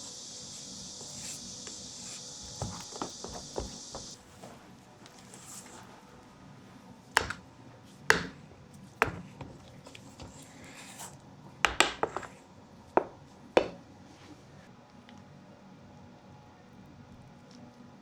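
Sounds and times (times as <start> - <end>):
utensils and dishes knocking: 2.6 - 4.2.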